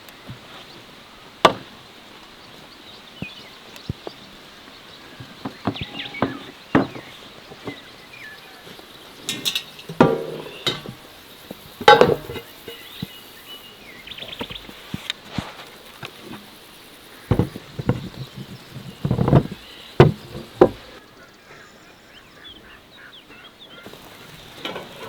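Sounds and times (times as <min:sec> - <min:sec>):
knocks and clinks of utensils: 0:09.2 - 0:11.0, 0:11.8 - 0:12.9.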